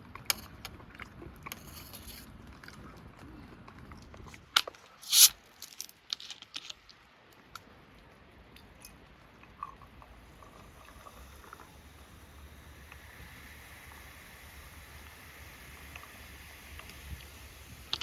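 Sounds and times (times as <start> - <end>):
faint low background hum: 0.0 - 18.0
loud eating crunch: 5.0 - 6.9.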